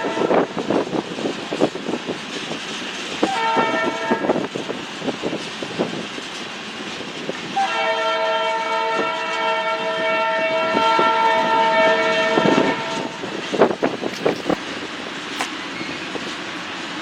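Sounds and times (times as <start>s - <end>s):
train air horn: 0.0s - 0.6s, 3.2s - 4.4s, 7.5s - 13.4s
railcar wheels clacking on rails: 0.0s - 17.0s.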